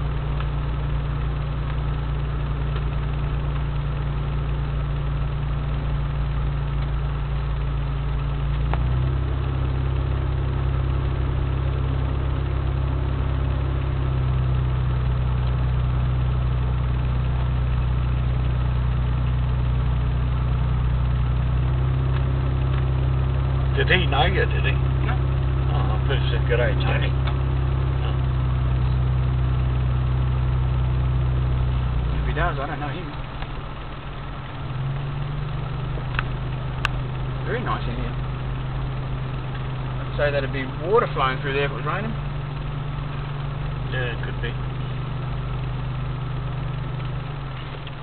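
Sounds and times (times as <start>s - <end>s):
vehicle engine running from inside cabin: 0.0s - 48.0s.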